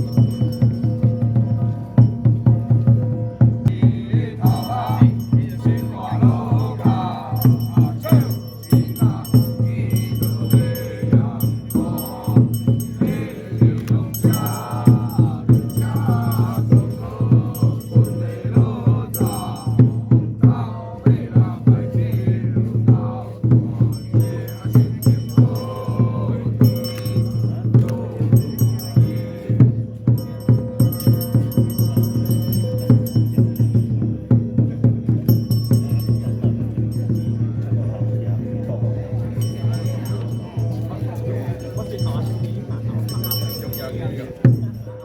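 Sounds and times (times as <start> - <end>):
metallic jingling: 0.0 - 1.3, 3.7 - 20.1, 23.8 - 29.5, 30.1 - 34.0, 35.2 - 37.7, 39.3 - 45.0
people chanting together: 0.0 - 45.0
steady drum beat: 0.0 - 45.0.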